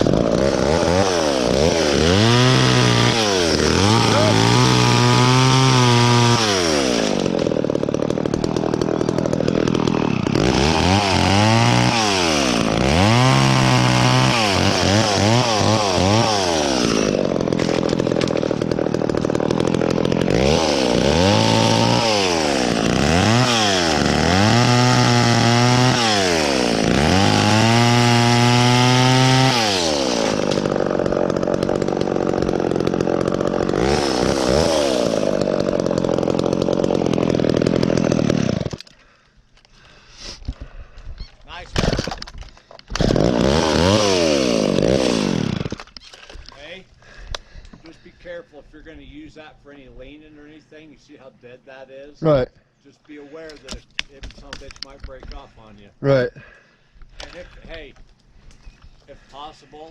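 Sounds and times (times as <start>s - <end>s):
chainsaw revving and idling: 0.0s - 39.2s, 42.8s - 48.1s.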